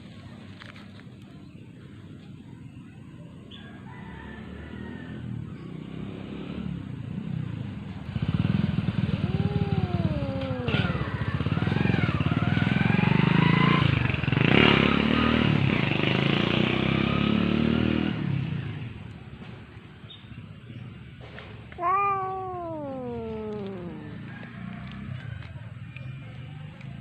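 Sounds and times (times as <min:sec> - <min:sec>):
cat growling: 0:09.1 - 0:11.0, 0:21.8 - 0:24.3
cat yowling: 0:09.2 - 0:11.0, 0:21.8 - 0:24.2.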